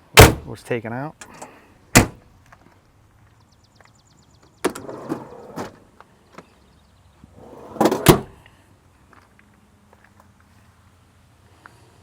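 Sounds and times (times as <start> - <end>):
door slamming shut: 0.2 - 0.5, 2.0 - 2.2, 7.8 - 8.3.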